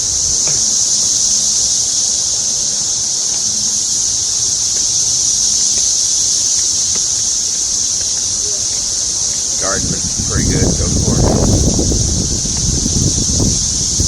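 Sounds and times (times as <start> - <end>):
wind rumble on microphone: 0.0 - 2.9, 8.0 - 14.0
cicadas droning: 0.0 - 14.0.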